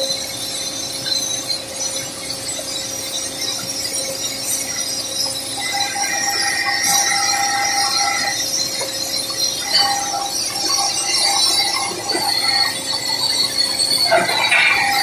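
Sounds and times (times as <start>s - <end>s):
squealing tone: 5.6s - 15.0s.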